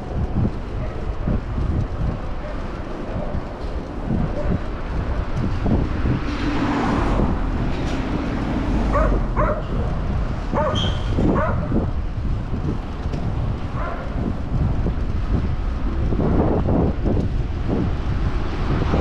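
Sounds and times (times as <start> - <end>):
low traffic rumble: 0.0 - 19.0
wind on microphone: 0.0 - 19.0
dog barking: 8.9 - 9.9, 10.5 - 11.8, 13.7 - 14.2.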